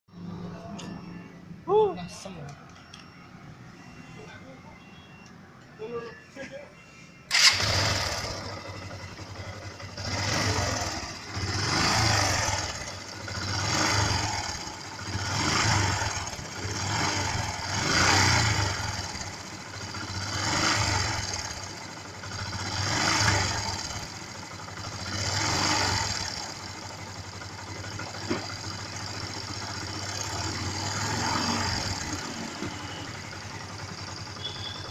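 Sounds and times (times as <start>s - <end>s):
motorcycle engine revving: 7.3s - 34.9s.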